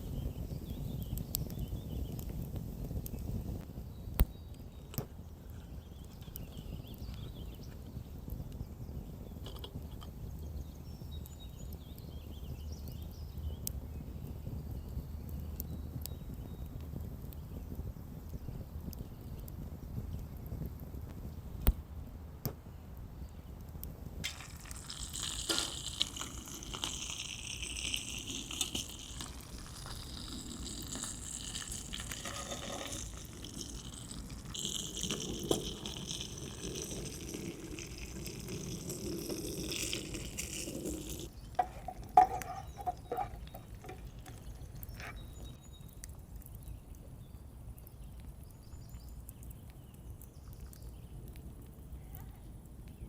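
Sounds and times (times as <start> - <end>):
water pouring: 24.2 - 45.5
knocks and clatters: 41.6 - 45.2.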